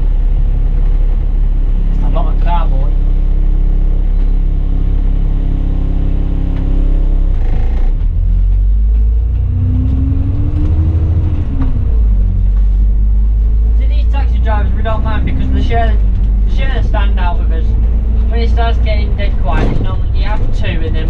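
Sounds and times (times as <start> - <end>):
bus engine running: 0.0 - 21.0.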